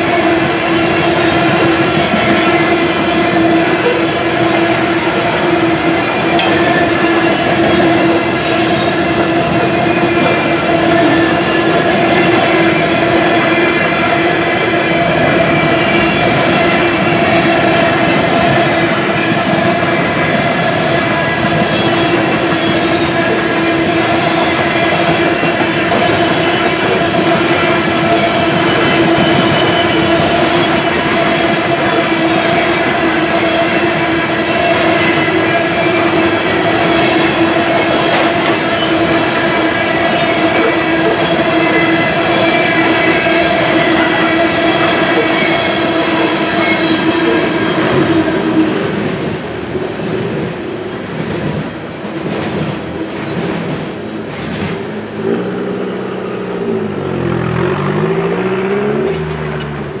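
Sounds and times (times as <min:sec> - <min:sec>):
train wheels clacking over rail joints: 0:00.0 - 0:55.6, 0:56.6 - 1:00.0
road vehicle engine: 0:54.8 - 1:00.0.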